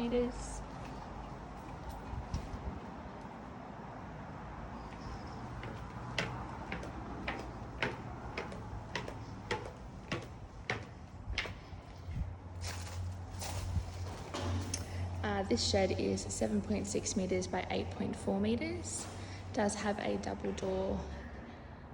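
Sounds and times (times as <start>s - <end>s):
footsteps of person walking: 4.8s - 14.0s.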